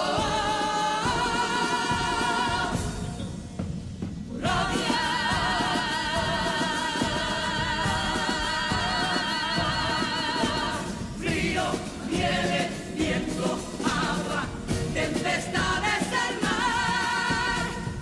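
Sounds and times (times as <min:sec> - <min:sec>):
choir singing: 0:00.0 - 0:03.4, 0:04.2 - 0:18.0
musical accompaniment: 0:00.0 - 0:18.0.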